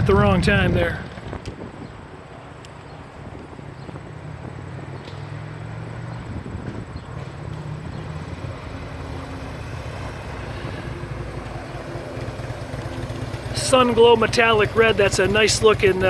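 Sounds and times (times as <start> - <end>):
motorcycle engine idling: 6.2 - 16.0.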